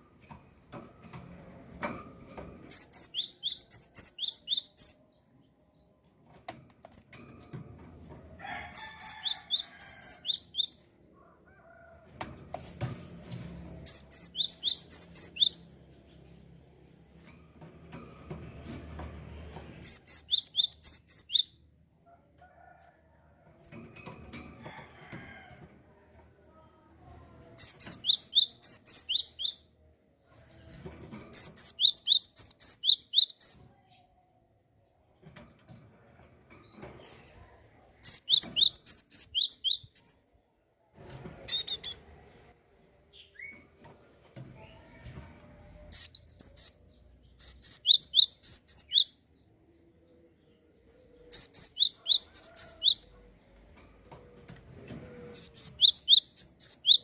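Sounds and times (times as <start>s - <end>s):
songbird whistling song: 2.7s - 5.0s, 8.8s - 10.8s, 13.9s - 15.7s, 19.8s - 21.6s, 27.6s - 29.7s, 31.4s - 33.6s, 38.0s - 40.2s, 47.4s - 49.2s, 51.3s - 53.1s, 55.4s - 57.0s.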